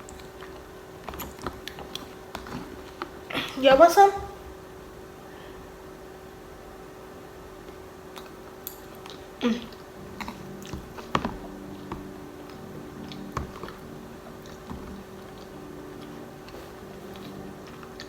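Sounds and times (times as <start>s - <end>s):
close chewing: 0.0s - 3.5s, 7.6s - 18.0s
faint steady hum: 0.0s - 18.0s.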